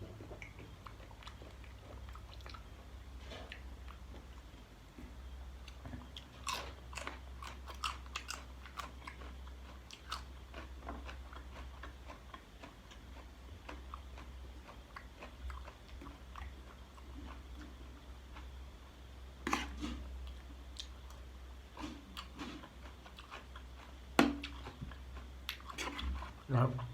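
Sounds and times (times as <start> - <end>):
person chewing crunchy food: 0.1 - 4.4, 5.6 - 26.9.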